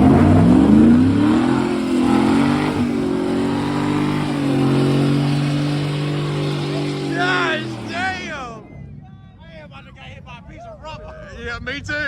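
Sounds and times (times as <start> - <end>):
truck engine revving: 0.0 - 8.8.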